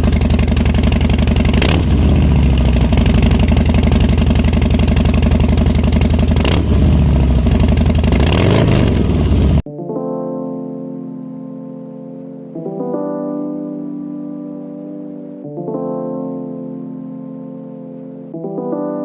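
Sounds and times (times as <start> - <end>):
motorcycle engine idling with revving: 0.0 - 9.7.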